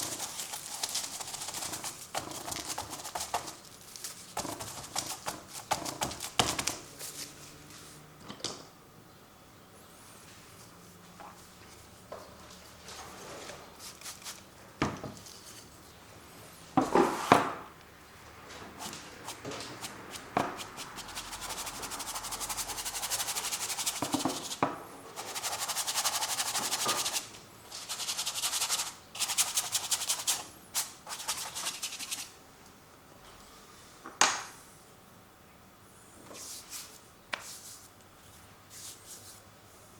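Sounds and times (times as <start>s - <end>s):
scratchy paint strokes on canvas: 0.0s - 6.4s, 18.8s - 24.6s, 25.2s - 32.3s.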